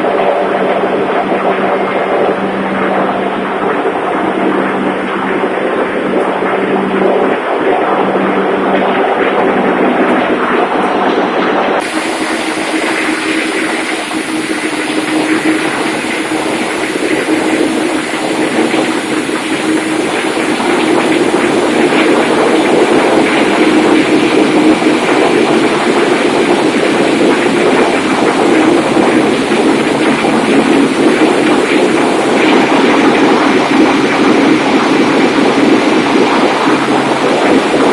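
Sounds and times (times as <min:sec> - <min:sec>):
engine room machinery din: 0:00.0 - 0:37.9
faint high whine: 0:10.2 - 0:37.9.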